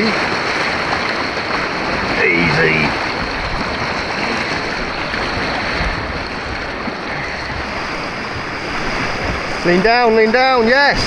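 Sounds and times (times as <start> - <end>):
churning white water rushing: 0.0 - 11.0.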